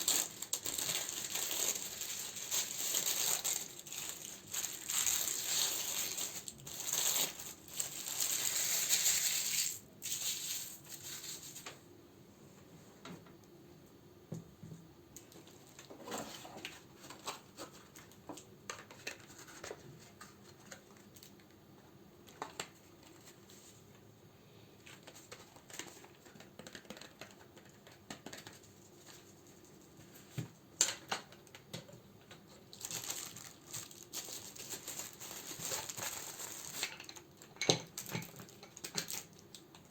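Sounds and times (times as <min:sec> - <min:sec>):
plastic and paper crinkling: 0:00.0 - 0:11.8, 0:15.2 - 0:21.5, 0:22.2 - 0:24.0, 0:24.8 - 0:31.7, 0:32.3 - 0:39.9.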